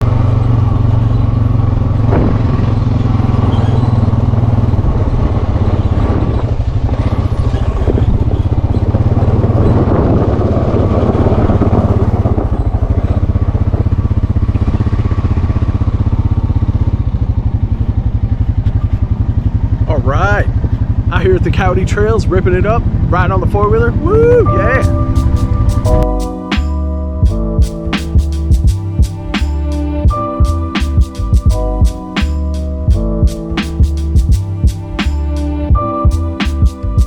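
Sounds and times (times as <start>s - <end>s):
atv engine running: 0.0s - 37.0s
sharp engine knocks: 2.0s - 4.3s.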